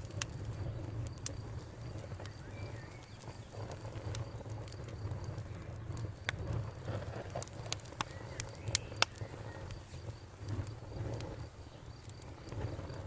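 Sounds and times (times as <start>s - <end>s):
crickets trilling: 0.0s - 13.0s
wood fire crackling: 0.0s - 13.0s
bird chirp: 2.0s - 3.6s, 8.0s - 9.8s.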